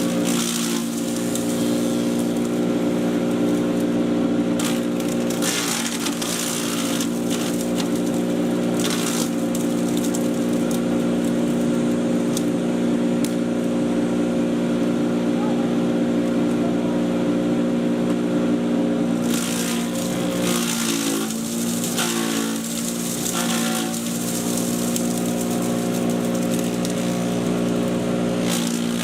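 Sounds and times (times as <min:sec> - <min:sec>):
crunching of material being chipped: 0:00.0 - 0:04.0, 0:04.6 - 0:12.6, 0:19.2 - 0:29.0
chipper shredder motor hum: 0:00.0 - 0:29.0.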